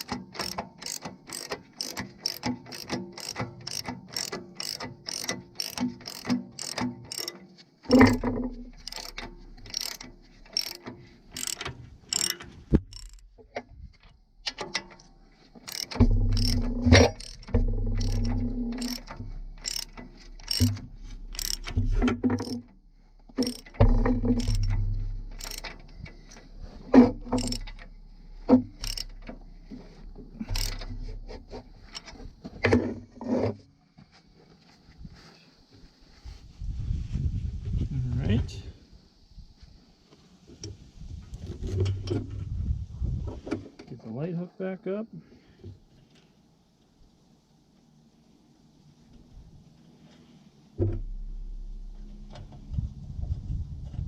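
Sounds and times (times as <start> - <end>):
ratchet wrench clicking: 0.0 - 13.4, 14.4 - 22.6, 23.4 - 26.4, 27.1 - 31.1
low hum: 12.7 - 32.5, 50.8 - 54.0.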